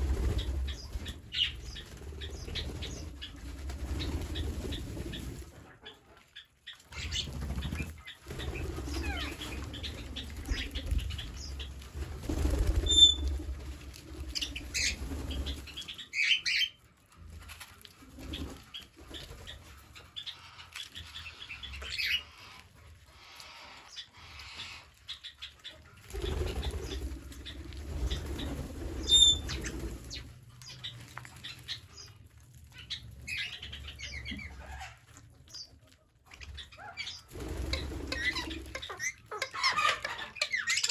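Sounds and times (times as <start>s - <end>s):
wing flapping: 0.0s - 5.6s, 6.9s - 16.0s, 26.0s - 32.2s, 36.4s - 40.9s
parrots chirping and calling: 3.9s - 11.7s, 12.3s - 13.3s, 20.0s - 40.9s
parrot squawks: 36.8s - 40.9s.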